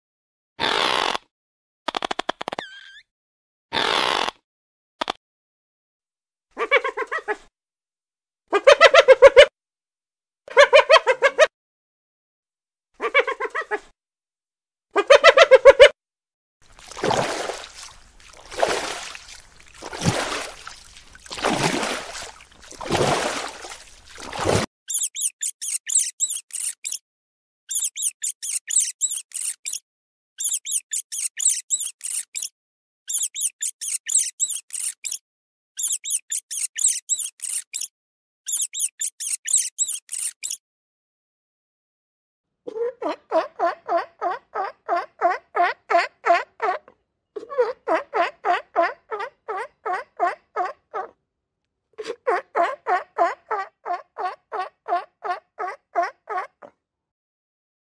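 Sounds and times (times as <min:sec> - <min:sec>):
high-pitched squeaking: 0:24.9 - 0:27.0, 0:27.7 - 0:29.8, 0:30.4 - 0:32.5, 0:33.1 - 0:35.2, 0:35.8 - 0:37.9, 0:38.5 - 0:40.6.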